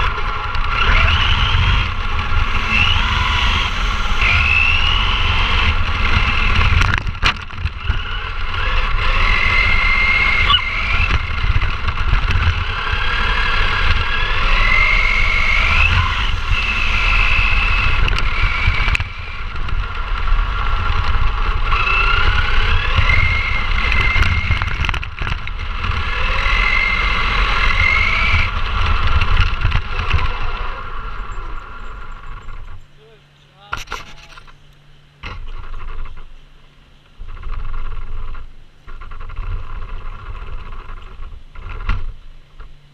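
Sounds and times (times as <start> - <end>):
toy truck electric motor whining: 0.0 - 7.1, 7.7 - 32.5
heavy low rumble: 0.0 - 34.7.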